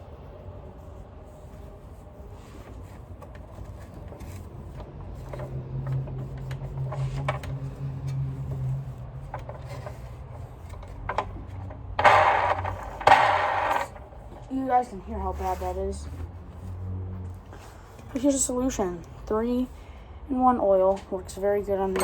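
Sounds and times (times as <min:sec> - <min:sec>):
vacuum parts humming and clicking: 0:00.0 - 0:19.4
loud grinding rattle: 0:09.3 - 0:14.4.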